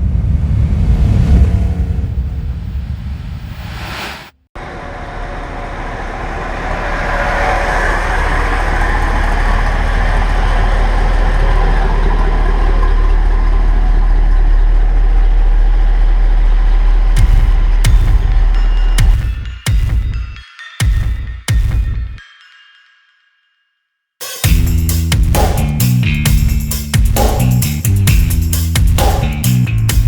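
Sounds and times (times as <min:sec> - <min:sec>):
car engine running: 0:04.6 - 0:20.1, 0:24.4 - 0:30.0.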